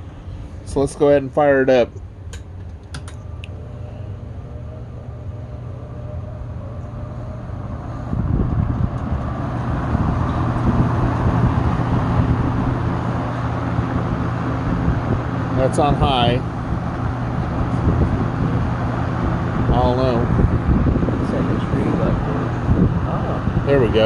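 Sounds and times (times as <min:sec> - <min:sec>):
rush of air from fan: 0:00.0 - 0:01.8, 0:03.2 - 0:24.0
fan motor humming: 0:00.0 - 0:24.0
fan switch clicks: 0:02.0 - 0:03.6, 0:08.4 - 0:09.4.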